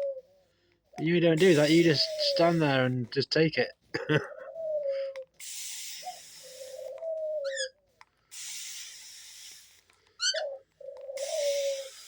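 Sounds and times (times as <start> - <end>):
dove cooing: 0.0 - 2.6, 4.0 - 12.0
water sprayer hissing bursts: 1.3 - 2.9, 5.4 - 7.0, 8.3 - 10.0, 11.2 - 12.0.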